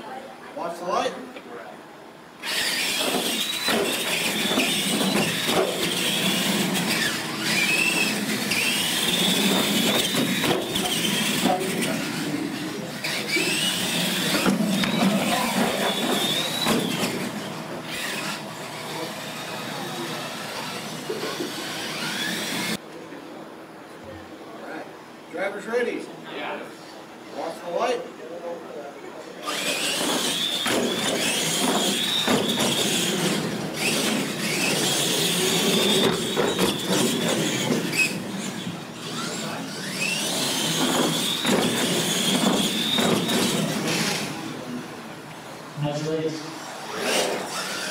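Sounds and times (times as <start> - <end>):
toy truck motor whine: 2.4 - 22.8, 29.4 - 44.6, 46.6 - 47.9.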